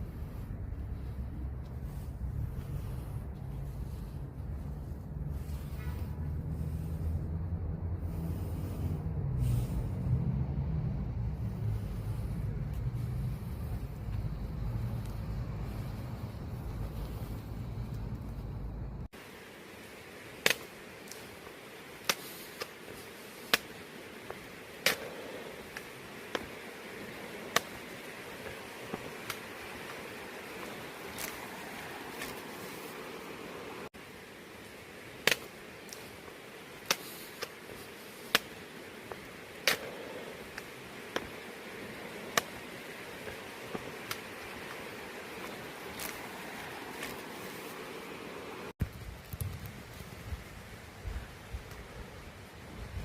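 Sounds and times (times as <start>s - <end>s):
low rumble: 0.0s - 19.1s
faint hiss: 0.0s - 53.0s.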